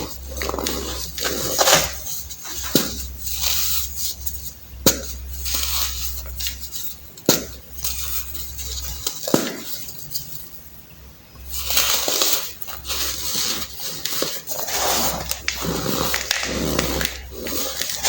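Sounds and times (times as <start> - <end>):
baking soda crumbling by hand: 11.4 - 18.0.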